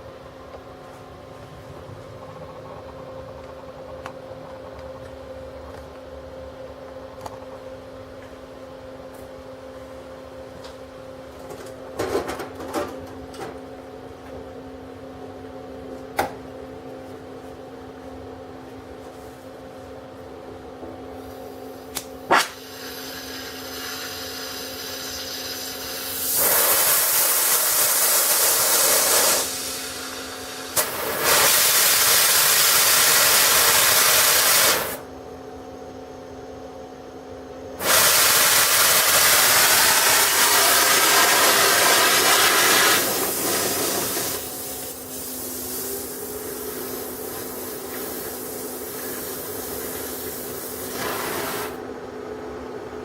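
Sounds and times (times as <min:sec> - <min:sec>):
steady hum: 0:00.0 - 0:53.0
sharp click: 0:21.9 - 0:22.6
gas torch hissing: 0:22.3 - 0:35.0, 0:37.8 - 0:51.8.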